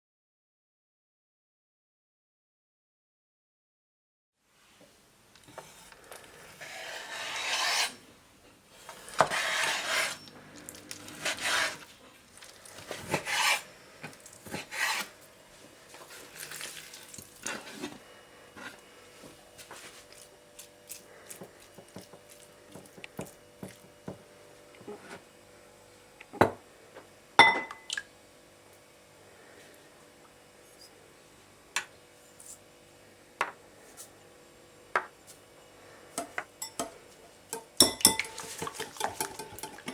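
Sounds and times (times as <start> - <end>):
knife rasping on cutting board: 6.5 - 8.0, 8.8 - 10.3, 11.2 - 11.9, 12.9 - 13.7, 14.5 - 15.1.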